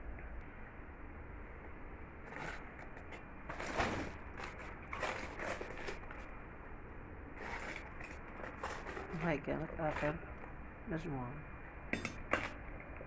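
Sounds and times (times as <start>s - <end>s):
ladle scraping in pot: 2.3s - 6.4s, 7.4s - 10.5s.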